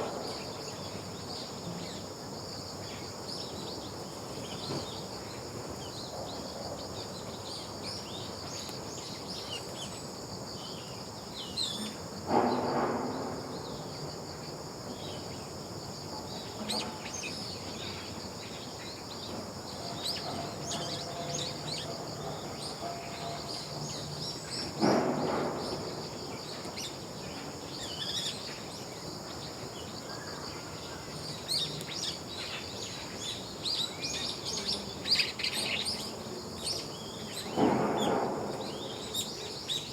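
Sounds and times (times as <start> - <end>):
insect drone: 0.0 - 39.9.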